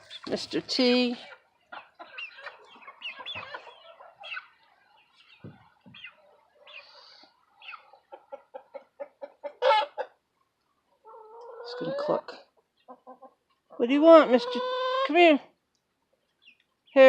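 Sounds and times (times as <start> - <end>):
chickens clucking: 0.0 - 17.0
chicken squawk: 1.7 - 4.7, 5.9 - 10.2, 11.0 - 12.3, 14.3 - 15.2.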